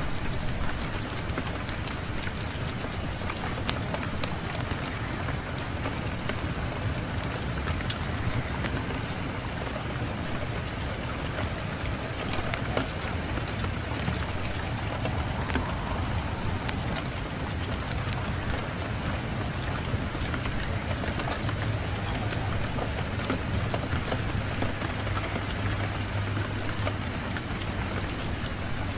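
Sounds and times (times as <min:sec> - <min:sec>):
fireplace fire crackling: 0:00.0 - 0:28.9
low rush of wind: 0:00.0 - 0:28.9.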